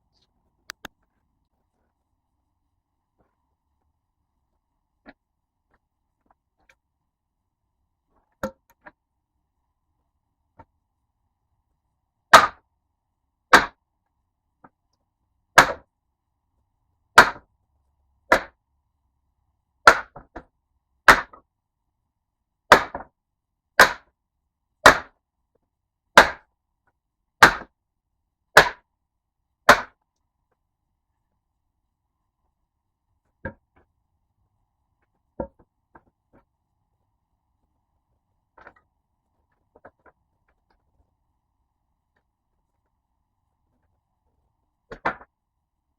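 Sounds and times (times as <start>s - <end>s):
tool chopping wood: 12.3s - 12.6s, 13.5s - 13.8s, 15.6s - 15.9s, 17.2s - 17.5s, 18.3s - 18.6s, 19.8s - 21.4s, 22.7s - 23.1s, 23.8s - 24.1s, 24.8s - 25.2s, 26.2s - 26.5s, 27.4s - 27.8s, 28.6s - 28.9s, 29.7s - 30.0s, 33.4s - 33.9s, 35.4s - 36.5s, 44.9s - 45.3s.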